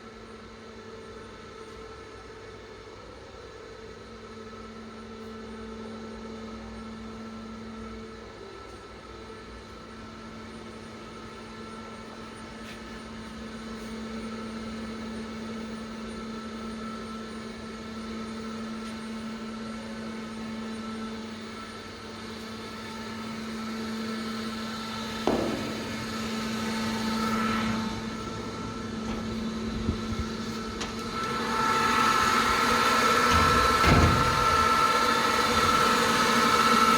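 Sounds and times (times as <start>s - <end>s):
machinery hum: 0.0s - 36.9s
sharp knock: 25.2s - 26.2s.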